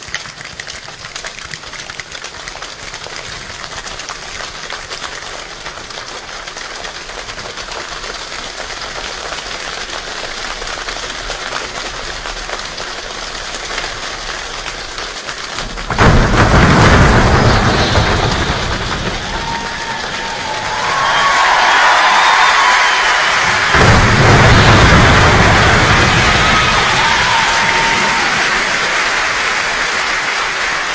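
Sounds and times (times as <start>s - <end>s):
hands clapping and slapping: 0.0s - 12.9s.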